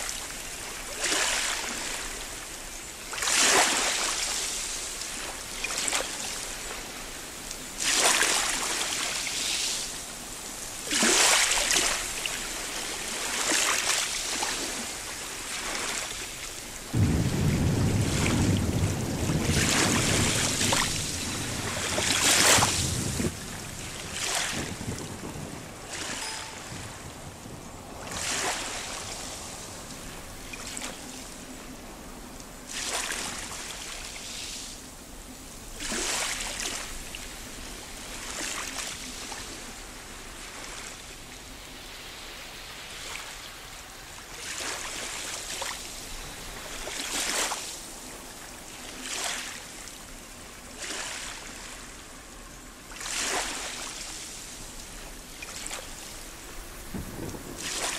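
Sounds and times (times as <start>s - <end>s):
waves breaking over rocks: 10.8s - 27.2s, 28.0s - 31.1s, 52.6s - 57.9s.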